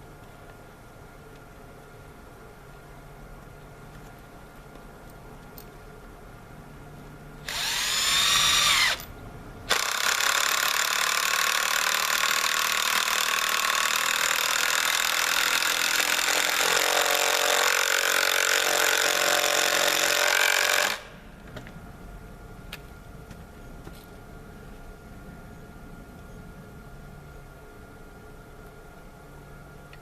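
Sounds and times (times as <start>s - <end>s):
power driver running screws into wood: 7.5s - 9.1s, 9.7s - 21.1s.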